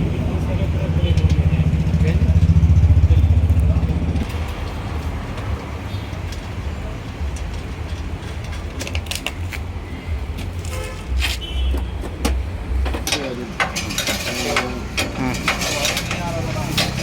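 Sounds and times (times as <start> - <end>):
low rumble: 0.0 - 5.6
tools clanking on metal: 12.2 - 17.0.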